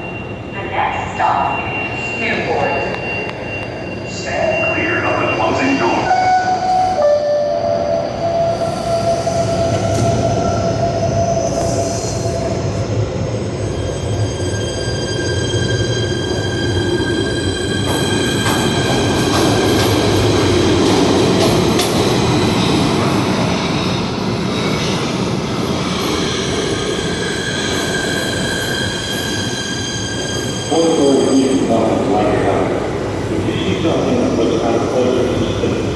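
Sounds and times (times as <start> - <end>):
train wheels squealing: 0.0 - 7.2, 8.0 - 20.8, 21.4 - 32.6
train running gear rumble: 6.7 - 29.3.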